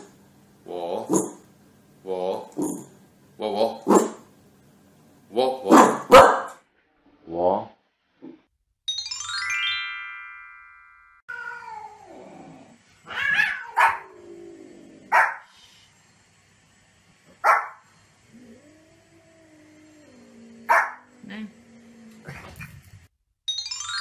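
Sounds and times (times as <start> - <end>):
bright chiming jingle: 8.9 - 11.2, 23.5 - 24.0
small dog yapping: 13.1 - 14.1.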